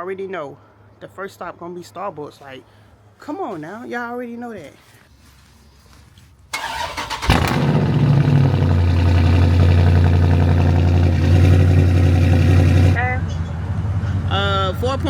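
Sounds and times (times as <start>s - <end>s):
car engine idling: 6.6s - 13.0s
starter motor cranking: 6.6s - 13.0s.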